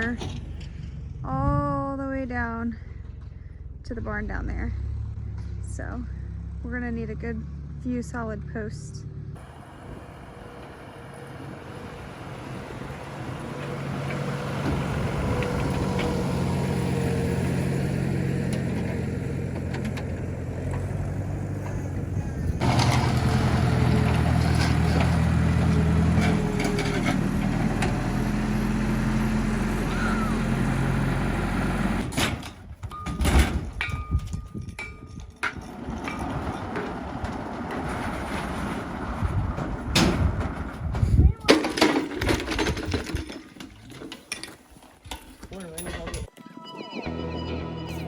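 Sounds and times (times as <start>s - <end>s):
vehicle engine running: 0.0s - 32.1s
sharp knocks and clanks: 32.0s - 46.4s.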